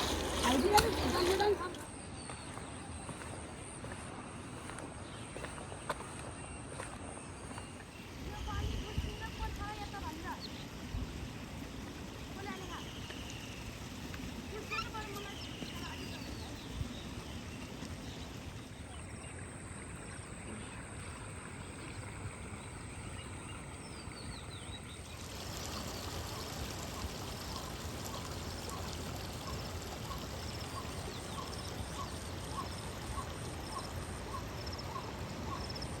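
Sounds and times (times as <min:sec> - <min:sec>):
rushing water: 0:00.0 - 0:02.0, 0:03.9 - 0:36.0.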